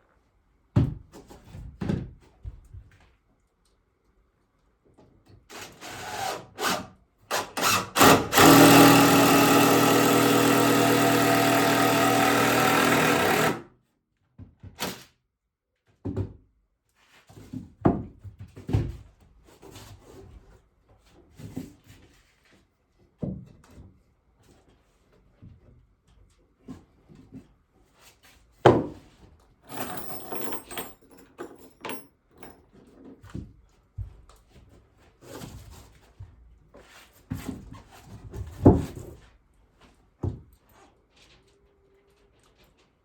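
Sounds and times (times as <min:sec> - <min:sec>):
power drill running: 0:05.5 - 0:13.6
wood and tools clattering: 0:07.6 - 0:13.6, 0:29.7 - 0:33.5.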